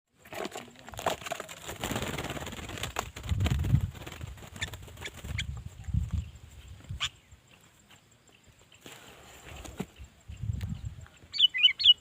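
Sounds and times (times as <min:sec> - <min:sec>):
bird chirps: 0:04.2 - 0:12.0.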